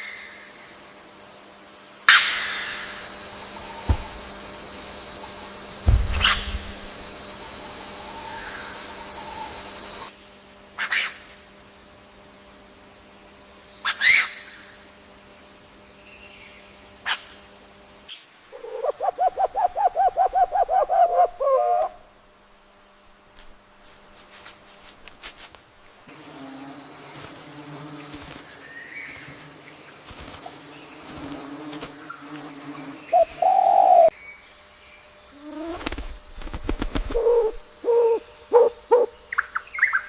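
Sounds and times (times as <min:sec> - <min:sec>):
insect buzz: 0:00.0 - 0:40.0
rapid pulsed animal call: 0:02.1 - 0:10.1, 0:35.3 - 0:40.0
sharp bird calls: 0:05.9 - 0:09.6.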